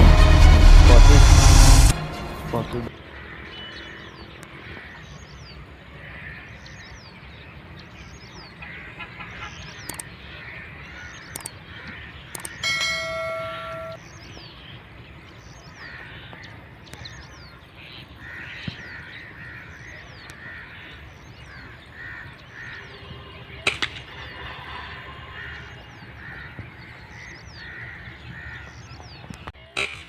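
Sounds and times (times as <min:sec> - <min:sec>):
birds calling: 0:01.8 - 0:30.0.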